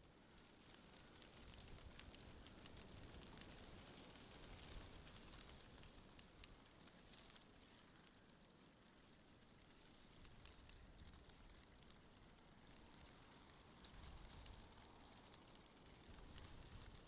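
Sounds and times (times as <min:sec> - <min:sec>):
faint wind rustle: 0:00.0 - 0:17.0
tiny clicks and crackles: 0:00.0 - 0:17.0.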